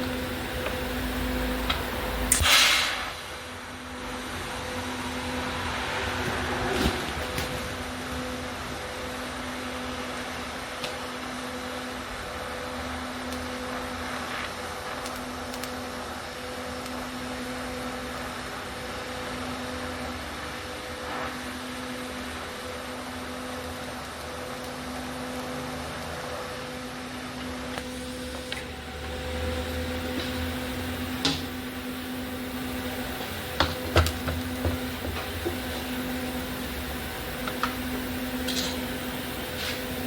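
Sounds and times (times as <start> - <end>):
low hum: 0.0 - 3.4, 27.8 - 40.0
arc welding hiss: 0.0 - 5.2, 8.1 - 25.5, 27.8 - 40.0.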